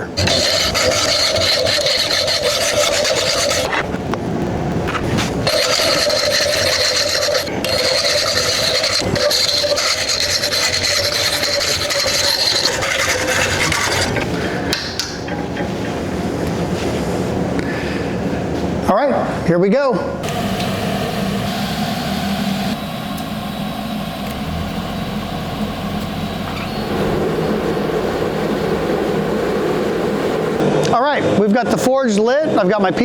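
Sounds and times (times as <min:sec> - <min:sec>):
hacksaw cutting steel: 0:00.0 - 0:03.8, 0:05.4 - 0:14.3.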